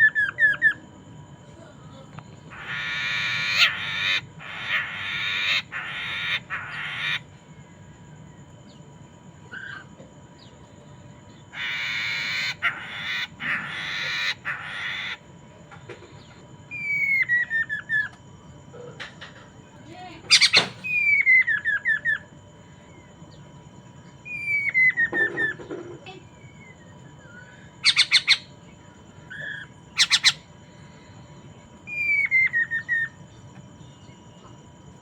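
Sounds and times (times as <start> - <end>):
harsh raspy bird chattering: 2.5 - 7.3, 11.5 - 15.3, 20.3 - 22.2, 27.8 - 28.6, 29.4 - 30.5.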